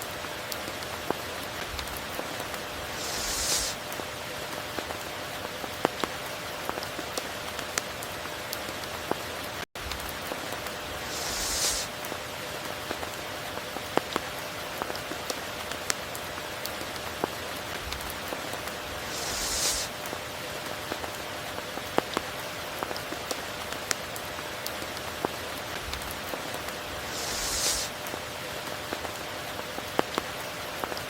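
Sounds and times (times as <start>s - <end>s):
rain on water and foliage: 0.0s - 31.0s
brief hiss: 2.9s - 3.8s, 11.0s - 12.0s, 18.9s - 20.0s, 26.9s - 28.0s.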